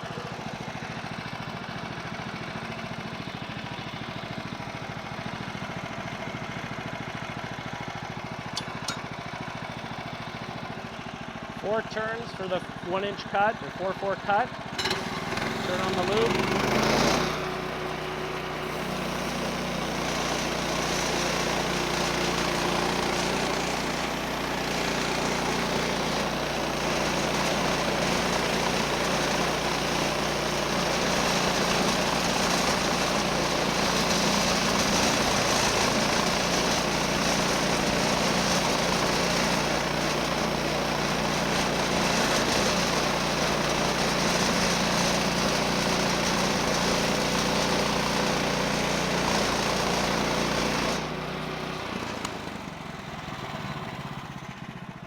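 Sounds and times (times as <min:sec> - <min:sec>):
sawmill engine running: 0:00.0 - 0:55.0
band blade sawing log: 0:14.9 - 0:51.2.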